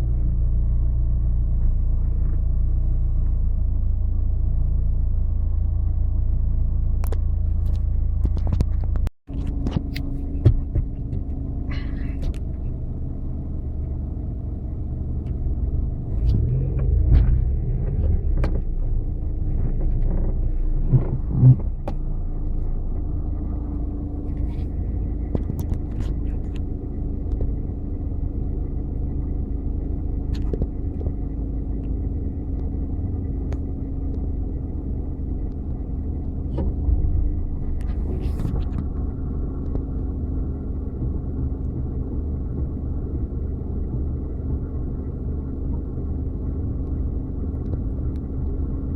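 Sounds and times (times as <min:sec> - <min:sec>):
vehicle engine low rumble: 0:00.0 - 0:48.9
knocks and clunks: 0:08.2 - 0:12.6.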